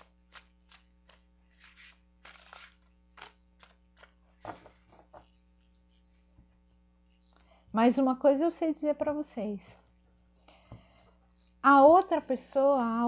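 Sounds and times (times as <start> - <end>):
cards being shuffled: 0.0 - 5.4.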